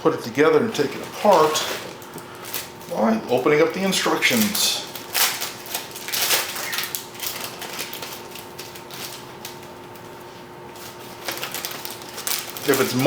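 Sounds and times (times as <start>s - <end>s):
paper rustling and crinkling: 0.6s - 13.0s.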